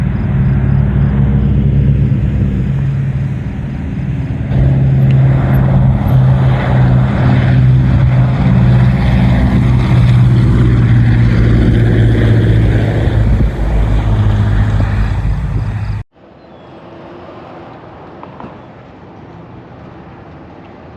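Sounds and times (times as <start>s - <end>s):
aircraft engines droning: 0.0s - 20.9s.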